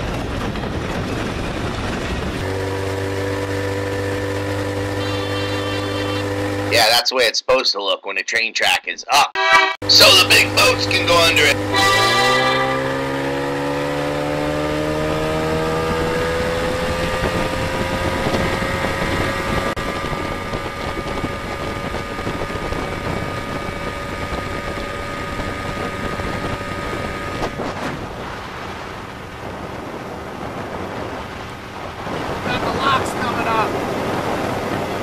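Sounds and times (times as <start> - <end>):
wind buffeting microphone: 0.0 - 5.0, 13.0 - 35.0
boat motor running: 0.0 - 6.8, 9.8 - 35.0.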